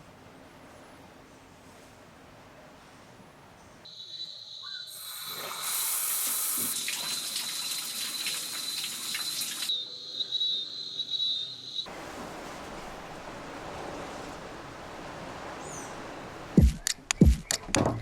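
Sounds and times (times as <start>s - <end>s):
water running from a tap: 5.0s - 9.7s.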